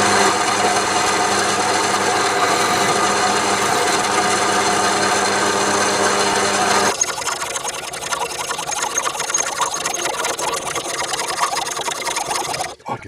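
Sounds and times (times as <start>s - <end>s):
power tool rasping metal: 0.0s - 7.0s
faint motor hum: 0.0s - 12.9s.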